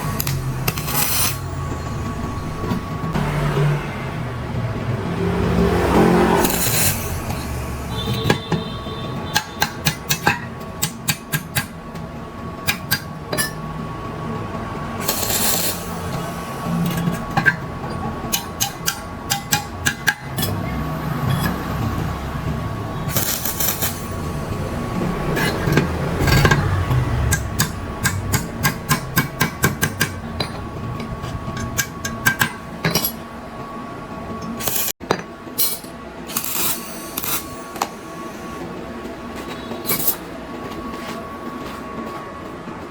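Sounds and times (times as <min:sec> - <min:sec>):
steady hum: 0:13.1 - 0:35.0.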